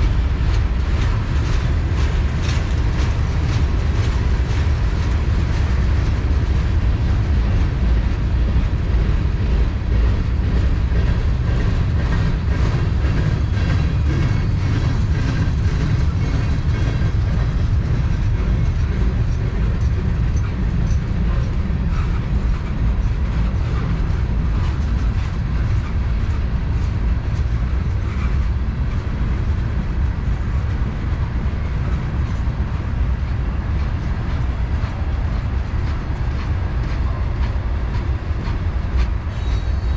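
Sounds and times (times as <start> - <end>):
freight train rumbling: 0.0 - 39.9
wheels clicking over rail joints: 0.0 - 39.9.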